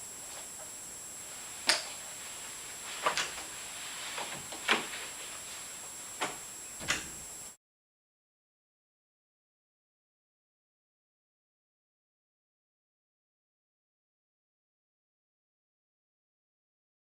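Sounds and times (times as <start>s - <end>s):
faint hiss: 0.0s - 7.6s.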